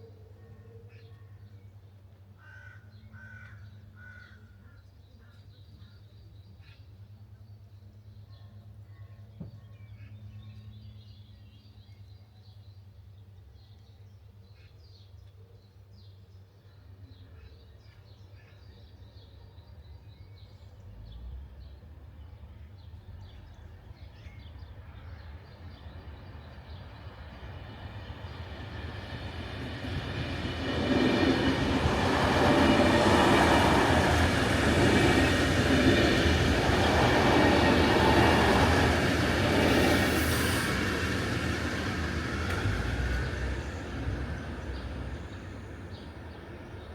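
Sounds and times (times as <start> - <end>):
passenger train passing: 24.7 - 46.9
birds chirping faintly: 25.9 - 46.9.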